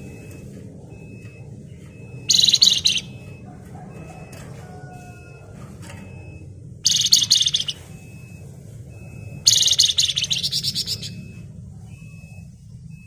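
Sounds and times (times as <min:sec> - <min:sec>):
songbird buzzing trills: 0:02.2 - 0:03.3, 0:06.8 - 0:07.9, 0:09.4 - 0:11.2.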